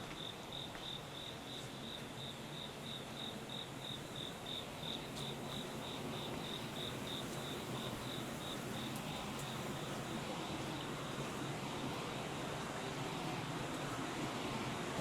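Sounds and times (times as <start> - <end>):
cricket chirping: 0.2 - 10.0.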